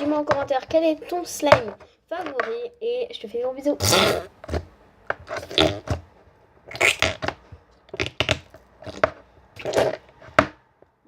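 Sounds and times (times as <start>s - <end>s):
slime crunching and crackling: 6.7s - 10.1s.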